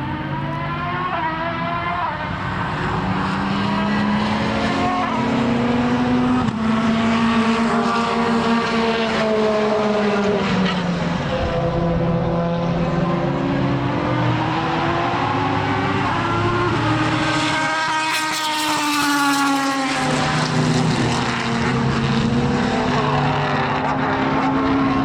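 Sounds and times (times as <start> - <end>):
racing car engine revving: 0.0 - 25.0.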